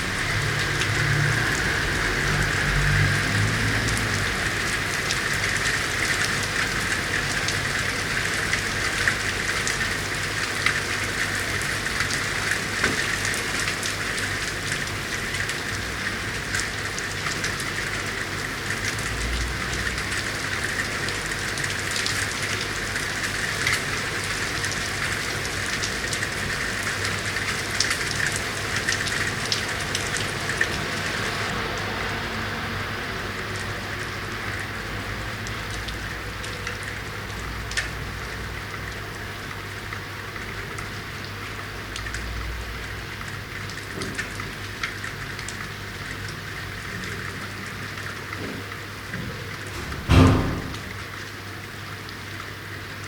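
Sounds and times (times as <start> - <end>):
rain falling: 0.0 - 53.0
raindrops landing sharply: 48.3 - 51.4.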